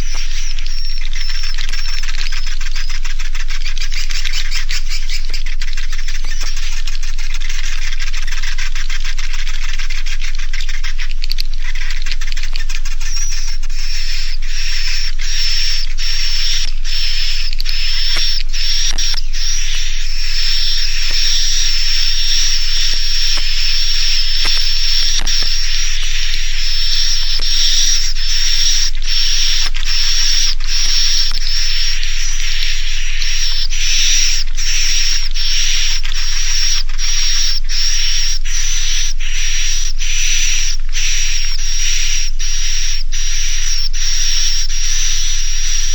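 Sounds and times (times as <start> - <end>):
steady high whistle: 0.0 - 2.6, 13.0 - 45.9
quick irregular clicks: 0.0 - 42.0
swiftlets twittering: 0.0 - 45.9.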